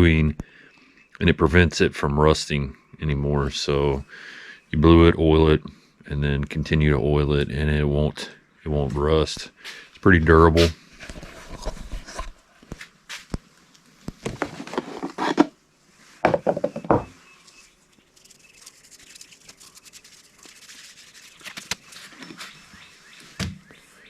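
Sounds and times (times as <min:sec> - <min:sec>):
handling rubbing and knocks: 0:14.2 - 0:15.6, 0:16.2 - 0:17.2.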